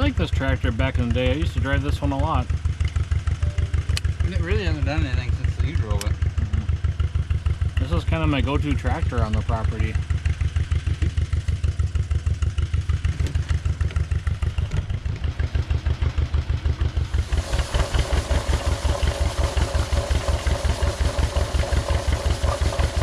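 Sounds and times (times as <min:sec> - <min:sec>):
tractor engine running: 0:00.0 - 0:23.0
steady whine: 0:17.0 - 0:23.0.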